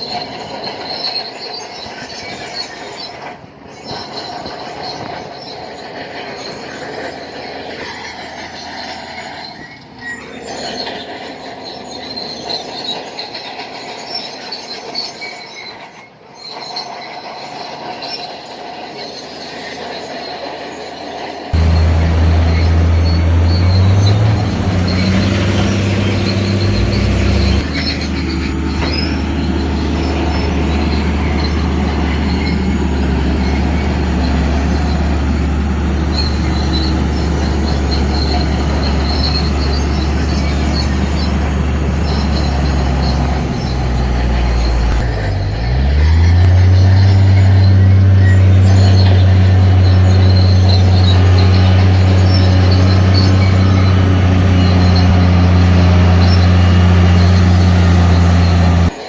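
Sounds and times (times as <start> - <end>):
bulldozer diesel engine: 0.0 - 59.0
steel tracks squealing and clattering: 0.0 - 59.0.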